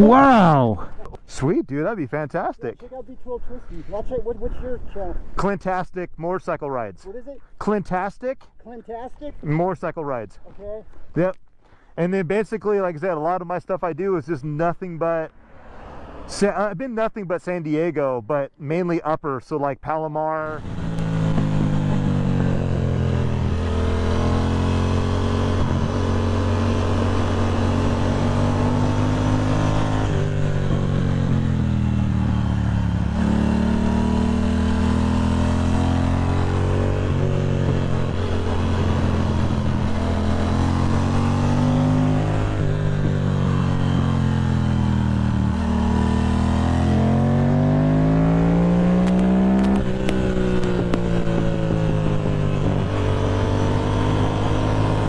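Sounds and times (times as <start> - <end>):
motorcycle engine revving: 20.5 - 55.0.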